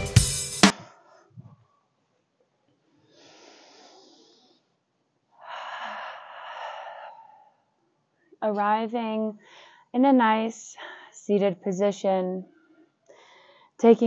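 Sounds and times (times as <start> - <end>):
person breathing: 3.1 - 4.7, 5.4 - 7.7, 9.4 - 9.9, 13.1 - 13.8.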